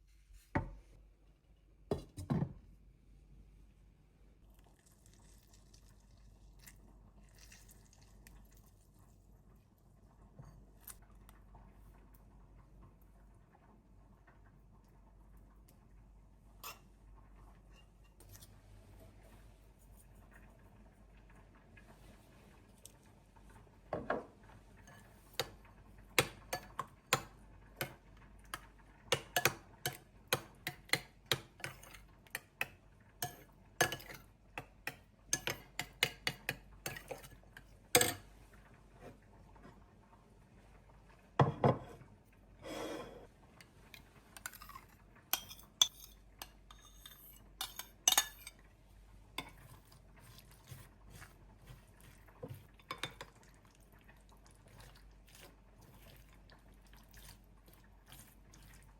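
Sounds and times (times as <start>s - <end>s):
dishes and cutlery clinking: 26.2s - 38.3s, 44.4s - 48.6s, 52.4s - 53.5s
scraping on table: 42.6s - 43.3s.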